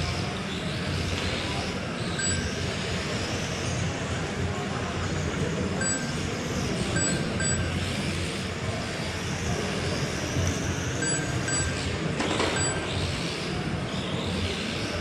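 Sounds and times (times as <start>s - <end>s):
short electronic beeps: 2.1s - 2.6s, 5.8s - 6.2s, 6.9s - 7.8s, 11.0s - 11.9s, 12.5s - 12.9s.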